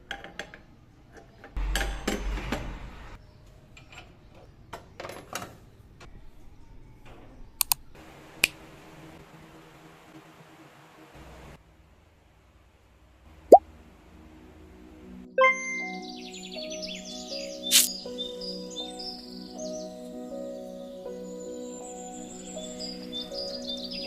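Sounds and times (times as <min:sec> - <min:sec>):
sharp clicks: 0:07.6 - 0:07.8.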